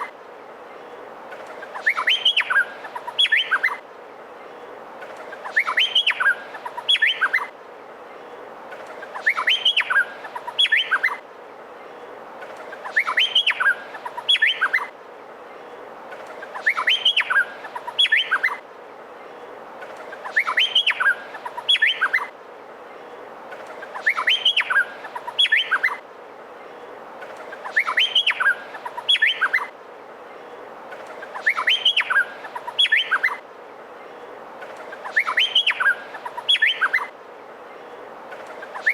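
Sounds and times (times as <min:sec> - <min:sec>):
steady background hiss: 0:00.0 - 0:38.9
bird singing whistled notes: 0:01.7 - 0:03.8, 0:05.4 - 0:07.5, 0:09.1 - 0:11.2, 0:12.8 - 0:14.9, 0:16.5 - 0:18.6, 0:20.2 - 0:22.3, 0:23.8 - 0:26.0, 0:27.6 - 0:29.7, 0:31.2 - 0:33.4, 0:35.0 - 0:37.1, 0:38.6 - 0:38.9.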